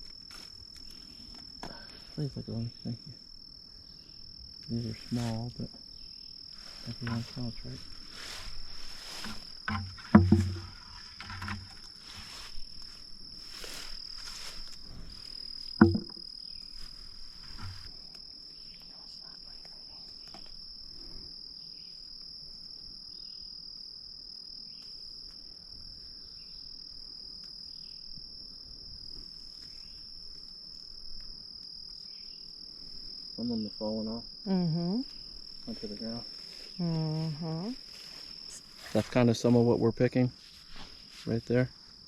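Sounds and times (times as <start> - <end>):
rustling of picking berries: 0.0 - 2.3, 4.7 - 5.7, 6.4 - 18.3, 35.0 - 42.0
insects droning: 0.0 - 42.0
sharp knocks: 9.2 - 11.8, 15.8 - 16.2.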